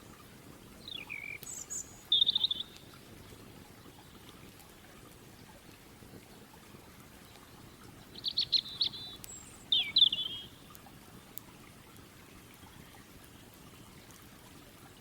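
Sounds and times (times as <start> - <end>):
faint steady hiss: 0.0 - 15.0
songbird singing: 0.8 - 3.0, 7.2 - 10.7.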